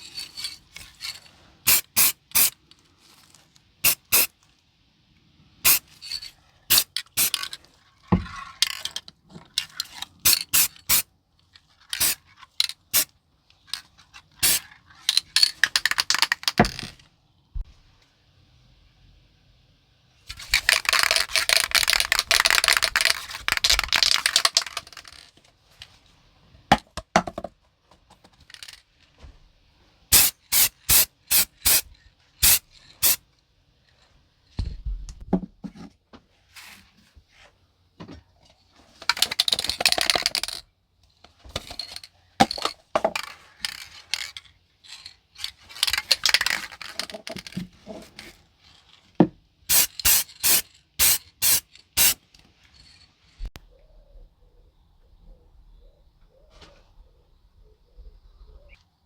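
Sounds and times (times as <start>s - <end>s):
spray can ball rattling: 0.0s - 2.6s, 3.8s - 4.4s, 5.6s - 7.7s, 9.6s - 11.1s, 11.8s - 13.1s, 13.8s - 17.0s, 20.3s - 25.4s, 28.1s - 28.8s, 30.1s - 33.2s, 39.0s - 40.6s, 41.6s - 47.6s, 49.7s - 53.0s
short bursts of spray: 1.6s - 2.6s, 3.8s - 4.3s, 5.6s - 7.5s, 10.2s - 11.0s, 12.0s - 12.2s, 14.4s - 14.6s, 30.1s - 33.2s, 49.7s - 52.2s.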